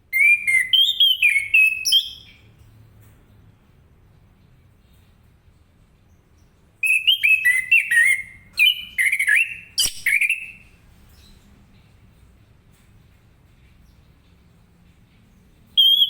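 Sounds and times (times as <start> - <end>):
thrush singing whistled phrases: 0.1 - 2.4, 6.8 - 10.7, 15.8 - 16.0
sharp click: 9.8 - 10.3.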